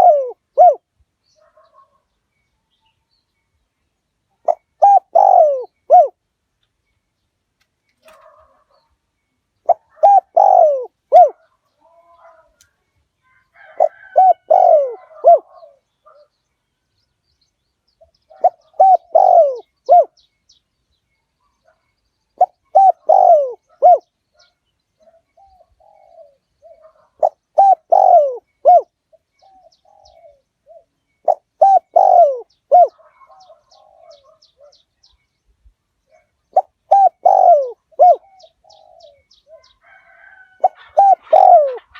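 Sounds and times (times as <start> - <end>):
dove cooing: 0.0 - 2.0, 4.4 - 6.2, 8.0 - 8.9, 9.6 - 12.6, 13.6 - 16.3, 18.0 - 20.2, 22.4 - 34.8, 36.1 - 41.9.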